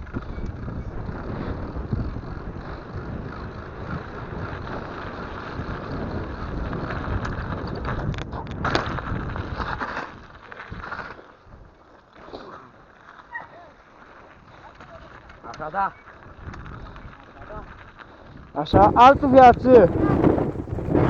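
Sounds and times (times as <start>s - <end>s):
wind buffeting microphone: 0.0s - 10.9s, 16.2s - 21.0s
steady rumble: 18.7s - 21.0s.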